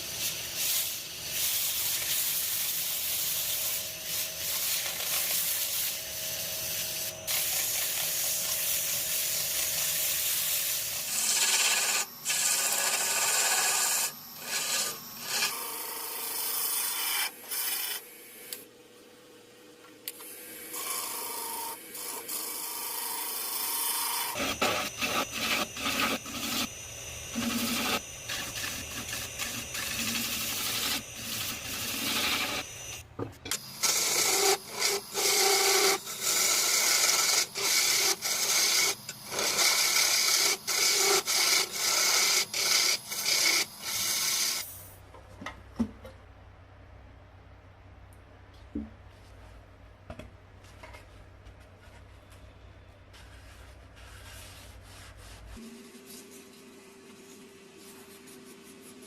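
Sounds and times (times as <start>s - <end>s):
lathe tool scraping wood: 7.2s - 15.6s, 20.8s - 33.0s, 33.6s - 44.7s.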